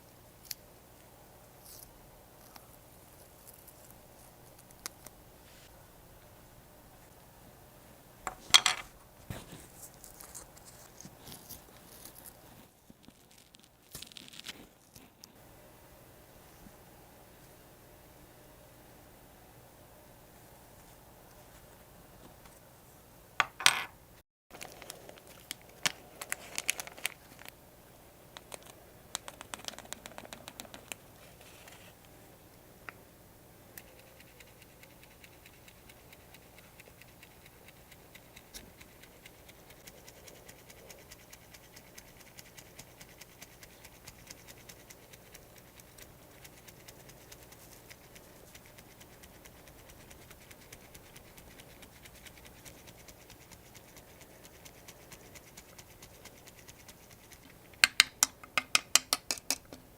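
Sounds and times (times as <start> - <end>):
scratching and scraping: 8.3 - 15.4.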